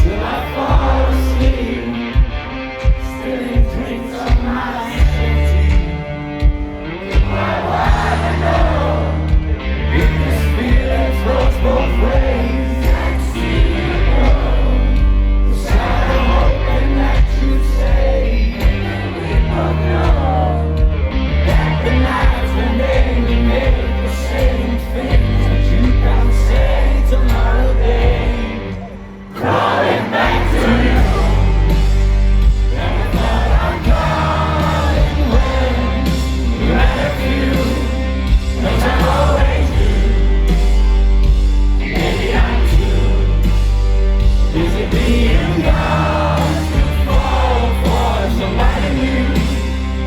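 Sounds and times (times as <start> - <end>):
crowd singing and yelling: 0.0 - 50.0
live rock band playing: 0.0 - 50.0.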